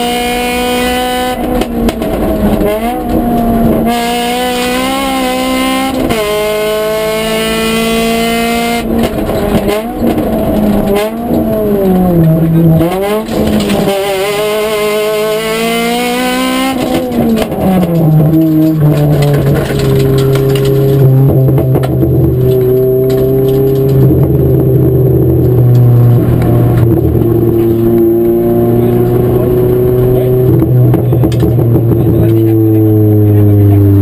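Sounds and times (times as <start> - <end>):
car engine revving through gears: 0.0 - 34.0.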